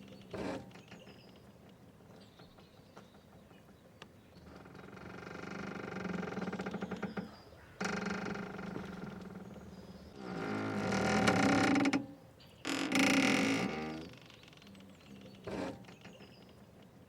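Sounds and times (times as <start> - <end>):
rope creaking under strain: 4.5 - 9.6, 10.2 - 16.2.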